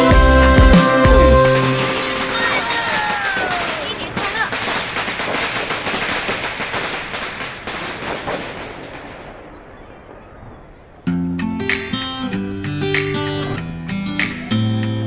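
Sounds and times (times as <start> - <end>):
fireworks bursting and crackling: 0.7 - 13.6
strummed acoustic guitar music: 11.1 - 15.0.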